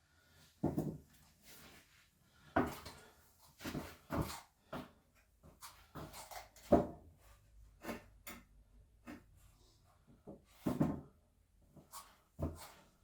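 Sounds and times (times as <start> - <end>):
knocks and clunks of objects handled: 10.2 - 11.2.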